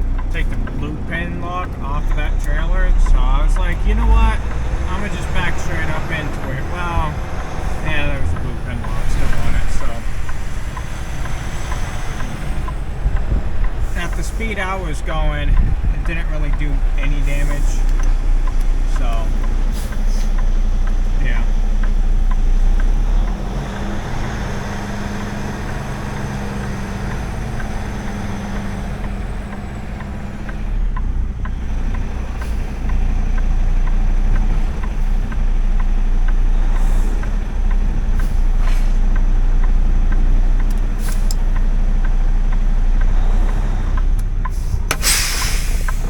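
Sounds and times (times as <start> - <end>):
diesel truck engine running: 0.0 - 46.0
air hisses: 44.5 - 46.0.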